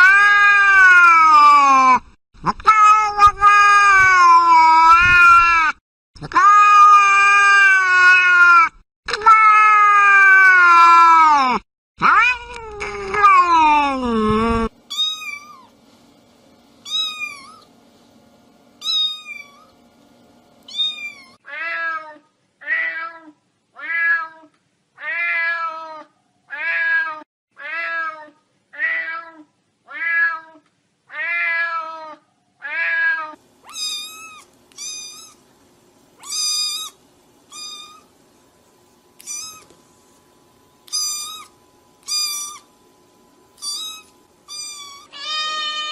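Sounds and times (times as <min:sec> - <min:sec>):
cat meowing: 0:12.0 - 0:14.0, 0:20.7 - 0:35.4, 0:36.2 - 0:38.1, 0:39.2 - 0:39.7, 0:40.9 - 0:42.7, 0:43.6 - 0:45.9.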